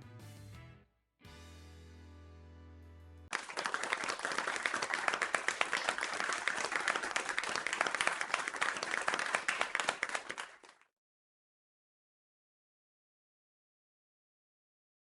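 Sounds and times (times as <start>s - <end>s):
crowd applauding: 3.3s - 10.8s.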